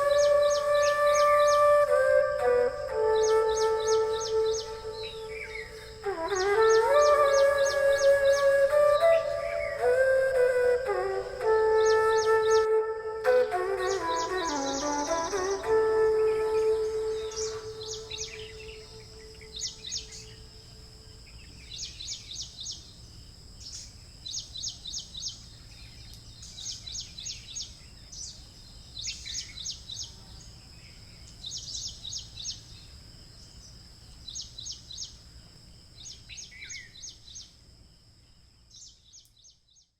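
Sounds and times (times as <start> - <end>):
bird chirping: 0.0 - 20.4
steady high whine: 0.0 - 28.3.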